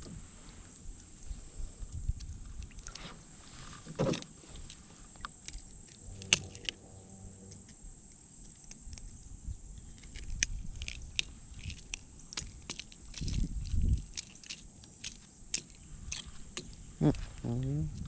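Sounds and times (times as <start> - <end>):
steady high-pitched tone: 6.0 - 8.0
fishing gear clicks and taps: 10.0 - 16.8.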